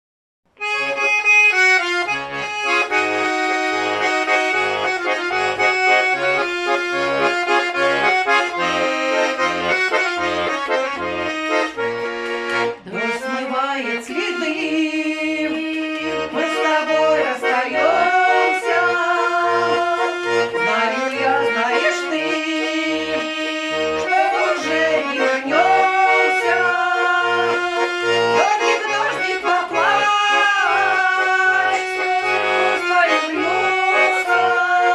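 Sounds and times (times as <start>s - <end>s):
accordion folk tune: 0.5s - 34.9s.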